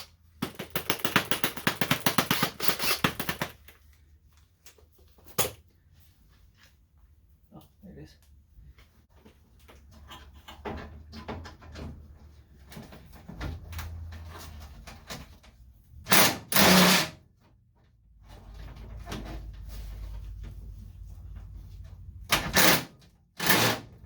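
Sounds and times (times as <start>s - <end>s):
clicks and knocks of hand work: 0.4s - 4.0s
power tool bursts: 16.1s - 17.2s, 22.6s - 23.9s.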